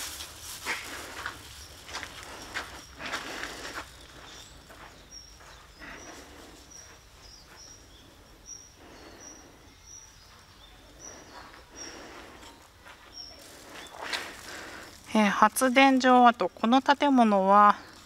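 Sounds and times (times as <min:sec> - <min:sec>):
soft footsteps: 0:00.0 - 0:08.2, 0:11.1 - 0:16.2
faint outdoor background: 0:00.0 - 0:18.0
small bird chirping: 0:01.5 - 0:14.7.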